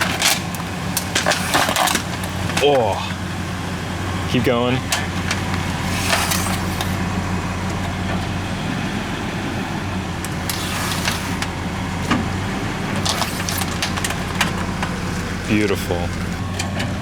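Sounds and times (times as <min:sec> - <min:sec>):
plastic fan cracking under tyres: 0:00.0 - 0:03.2, 0:12.9 - 0:16.9
truck engine humming: 0:00.0 - 0:17.0.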